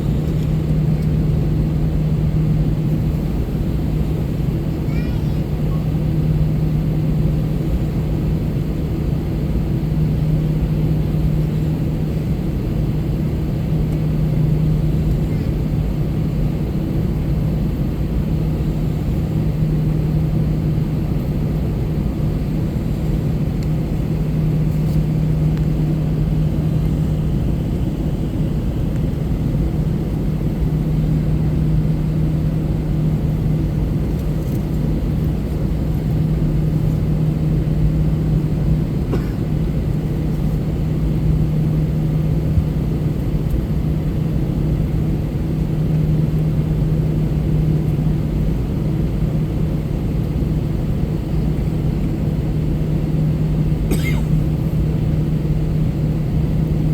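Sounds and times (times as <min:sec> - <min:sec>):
jet engine cabin drone: 0:00.0 - 0:56.9.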